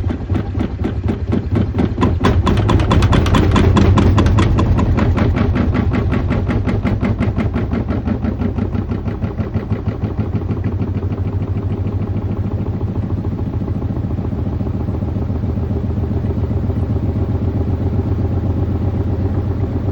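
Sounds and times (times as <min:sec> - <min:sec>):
washing machine knocking: 0:00.0 - 0:12.8
washing machine motor hum: 0:01.5 - 0:19.9.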